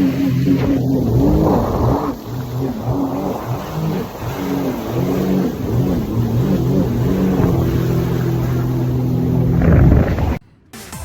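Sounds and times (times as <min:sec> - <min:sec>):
jet ski engine: 0:00.0 - 0:10.4
rush of noise: 0:06.9 - 0:11.0.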